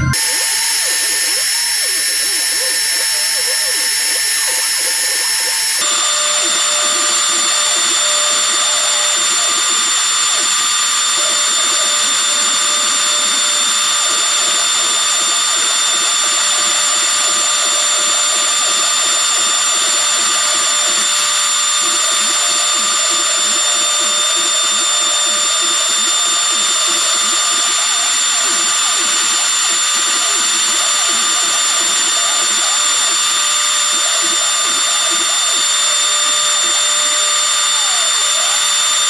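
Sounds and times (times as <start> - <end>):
router spindle high whine: 0.0 - 39.0.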